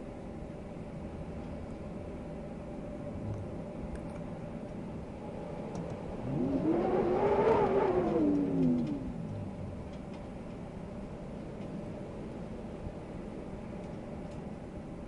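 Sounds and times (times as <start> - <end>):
wind noise: 4.8 - 13.0.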